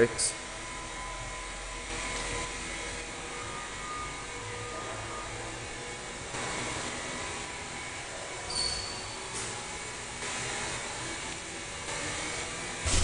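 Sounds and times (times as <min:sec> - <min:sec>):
steady rushing noise: 0:12.7 - 0:13.0.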